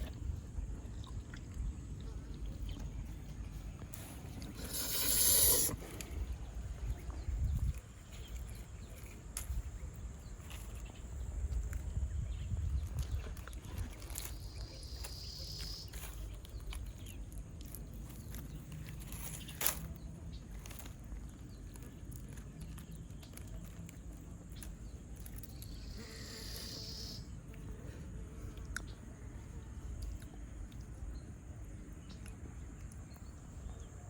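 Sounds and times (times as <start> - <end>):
steady low rumble: 0.0 - 4.9
insect buzzing: 4.5 - 6.0, 25.6 - 28.5
faint scattered ticks: 20.6 - 34.0.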